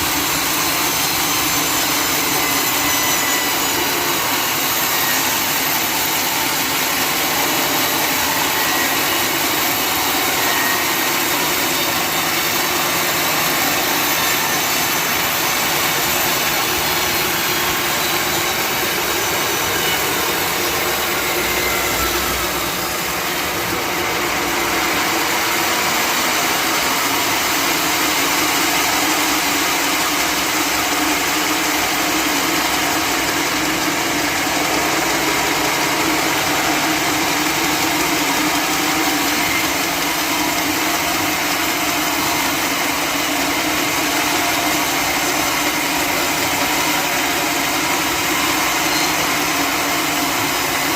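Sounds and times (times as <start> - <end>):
sawmill saw cutting log: 0.0 - 50.9.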